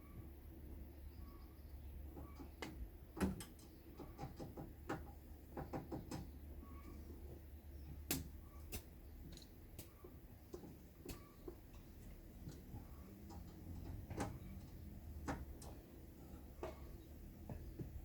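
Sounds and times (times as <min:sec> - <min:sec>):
faint low hum: 0:06.3 - 0:18.0
light clicks and knocks: 0:07.2 - 0:18.0.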